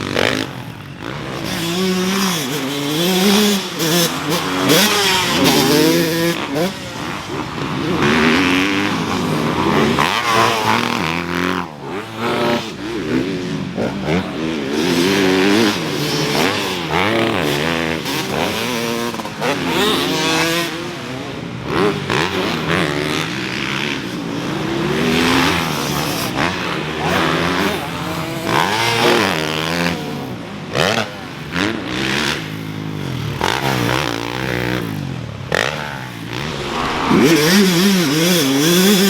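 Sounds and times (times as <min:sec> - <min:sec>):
dirt bike engines revving: 0:00.0 - 0:39.0.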